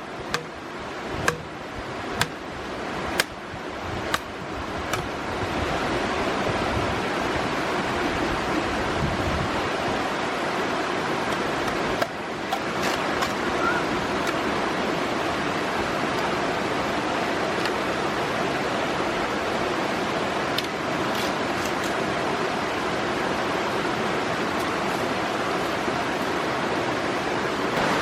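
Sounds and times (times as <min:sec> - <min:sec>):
stream water rushing: 0:00.0 - 0:28.0
sharp knocks: 0:00.3 - 0:00.5, 0:01.2 - 0:01.5.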